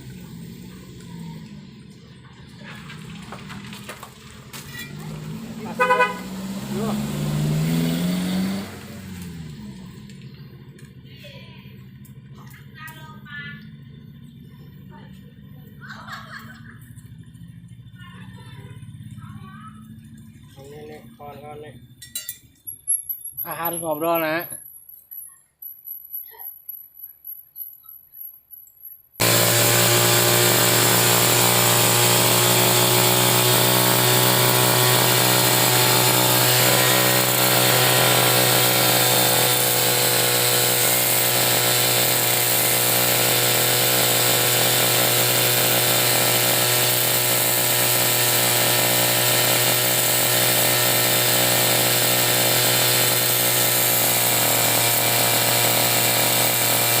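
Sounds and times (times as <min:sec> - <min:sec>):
electric angle grinder grinding: 0:29.2 - 0:57.0.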